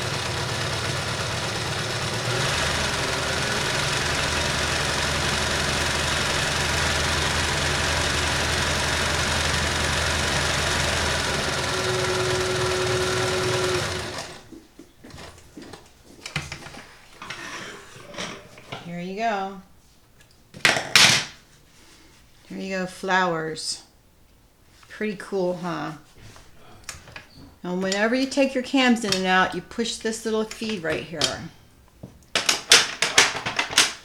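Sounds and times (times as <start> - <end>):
sewing machine running: 0.0 - 14.5.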